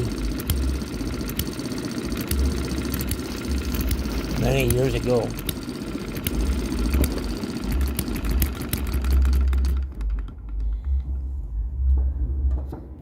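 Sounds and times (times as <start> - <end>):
small engine ticking: 0.0 - 11.1
low rumble: 10.0 - 13.0.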